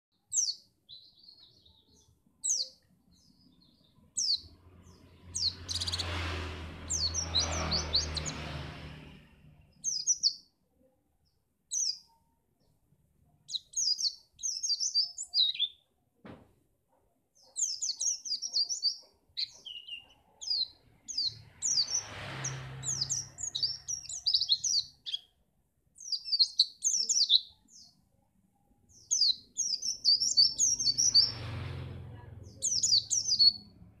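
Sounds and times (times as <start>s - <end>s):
bird singing high chirps: 0.1s - 10.5s, 11.2s - 12.3s, 13.4s - 15.9s, 17.4s - 25.4s, 26.0s - 28.0s, 28.9s - 31.6s, 32.4s - 33.8s.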